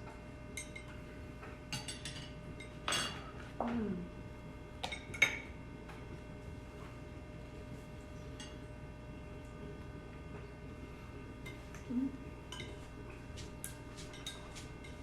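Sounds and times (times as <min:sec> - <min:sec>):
cutlery clinking against dishes: 0:01.7 - 0:03.4, 0:12.5 - 0:12.8, 0:14.0 - 0:15.0.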